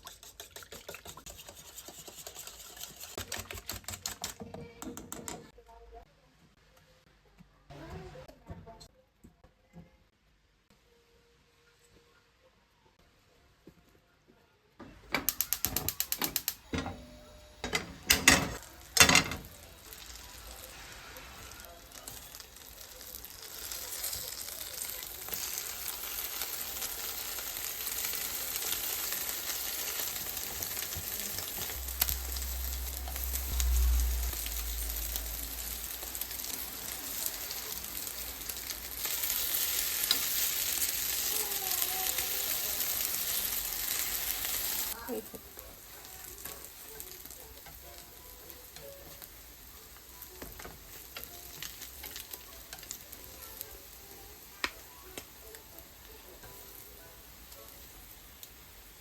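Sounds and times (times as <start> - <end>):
food sizzling in a pan: 0.0 - 3.2, 15.2 - 59.0.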